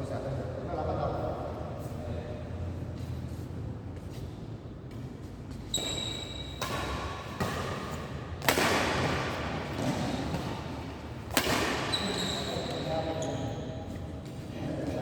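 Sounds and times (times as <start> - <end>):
brief high squeak: 5.7 - 6.6, 11.9 - 13.6
racket hitting shuttlecock: 5.8 - 12.7.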